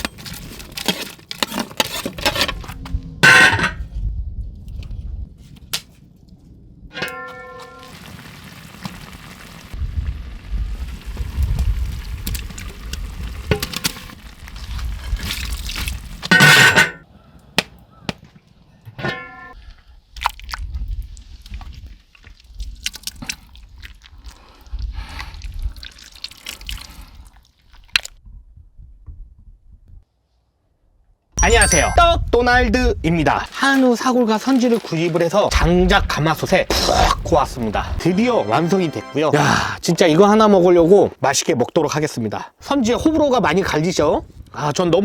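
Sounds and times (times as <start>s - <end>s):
metal utensil ringing on pot: 16.3s - 17.0s, 31.4s - 32.0s
liquid pouring and dripping: 21.5s - 28.1s, 33.5s - 35.5s.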